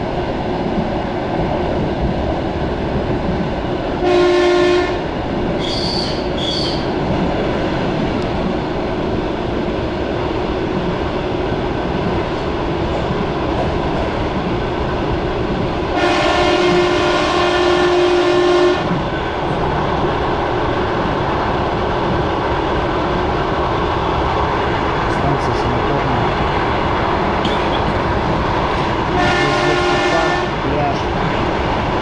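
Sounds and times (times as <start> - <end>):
train wheels rumbling on track: 0.0 - 32.0
train horn blast: 4.0 - 6.8, 16.0 - 19.0, 29.1 - 30.6.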